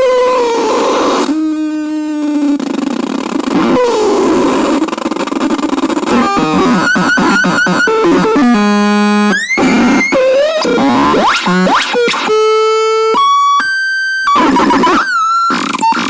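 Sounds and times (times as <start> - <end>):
synthesizer electronic sounds: 5.8 - 16.0.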